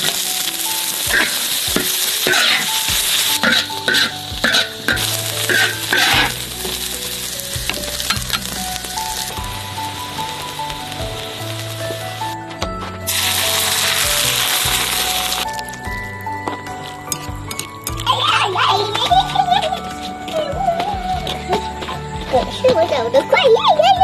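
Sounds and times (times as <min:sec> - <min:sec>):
food sizzling in oil: 0:00.0 - 0:12.4, 0:13.1 - 0:19.8
spatula scraping pan: 0:01.1 - 0:08.6.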